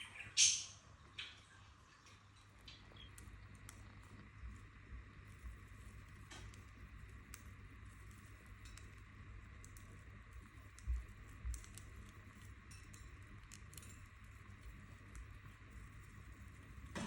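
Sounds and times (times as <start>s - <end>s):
budgies clicking in cage: 6.0s - 17.0s.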